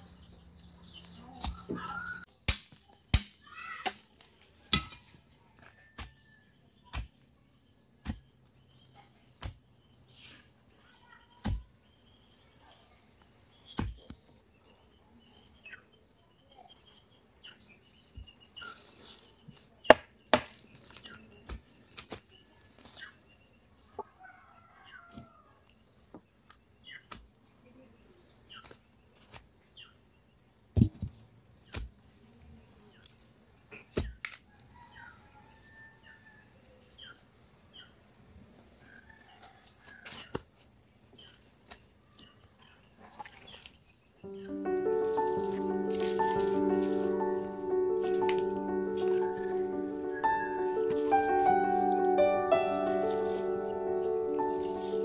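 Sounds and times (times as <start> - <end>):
bird chirping: 0.0 - 2.3
insects chirring: 41.2 - 55.0.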